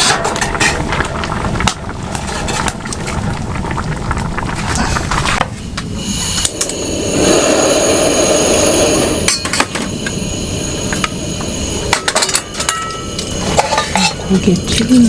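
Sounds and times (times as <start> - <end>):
heavy rain hiss: 1.9 - 15.0
metal cookware clinking: 11.9 - 15.0.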